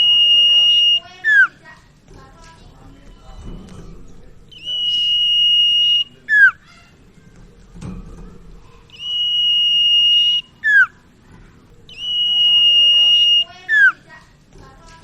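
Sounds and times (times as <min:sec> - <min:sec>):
bird whistling song: 0:00.0 - 0:01.6, 0:04.5 - 0:06.7, 0:08.9 - 0:11.0, 0:11.9 - 0:14.0.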